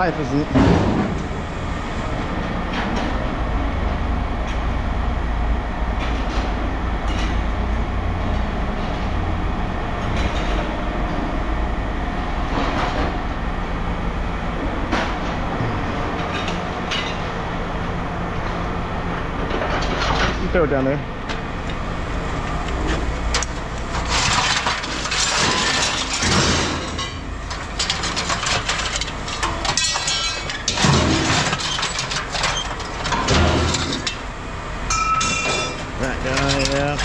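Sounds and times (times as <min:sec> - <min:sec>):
low mechanical rumble: 0:00.0 - 0:37.0
scrap metal clanking: 0:22.9 - 0:34.2.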